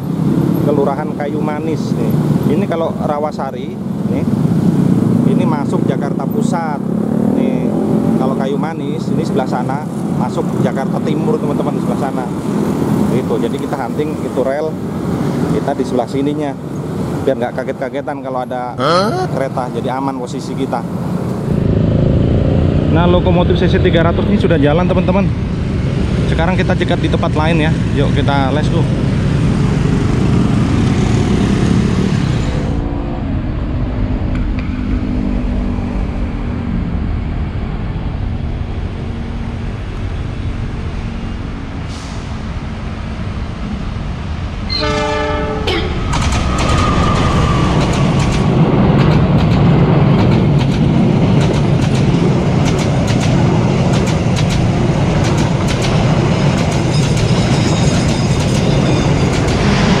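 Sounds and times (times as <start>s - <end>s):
motorbikes passing: 0.0s - 17.6s, 18.5s - 41.7s
train rumble: 32.0s - 60.0s
train horn: 44.7s - 45.9s
wheel clacks over rail joints: 47.8s - 59.8s.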